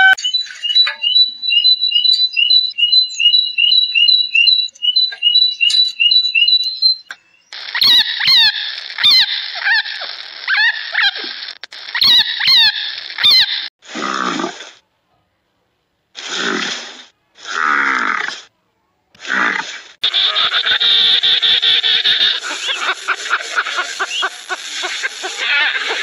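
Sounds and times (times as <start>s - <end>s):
high two-note chirps: 0.0s - 7.1s
squeaky calls dropping in pitch: 0.0s - 11.2s, 12.0s - 13.6s, 20.1s - 26.0s
sharp clicks: 4.3s - 9.0s.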